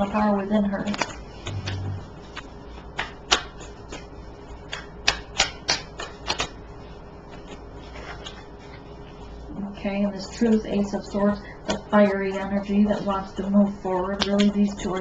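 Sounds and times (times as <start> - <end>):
cards clicking on a table: 4.7 - 6.6.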